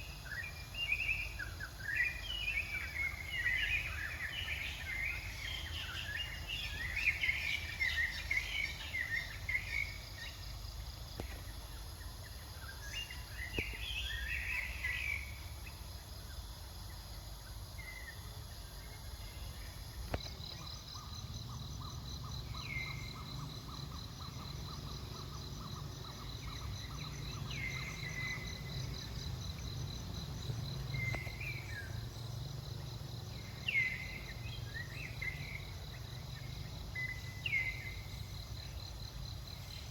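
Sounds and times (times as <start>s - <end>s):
bird chirps: 19.0s - 32.4s.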